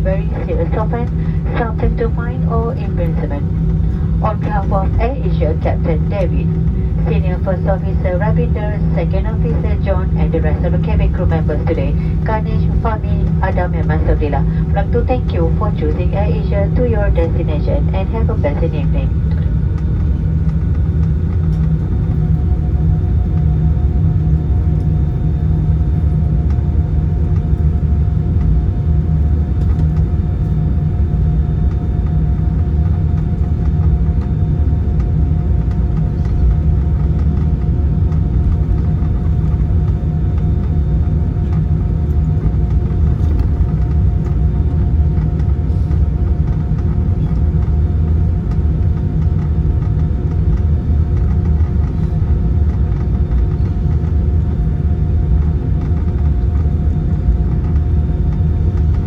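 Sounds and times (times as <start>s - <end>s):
thin steady whine: 0.0s - 28.4s
aircraft engines and gear rumble: 0.0s - 59.0s
faint steady hum: 0.0s - 59.0s.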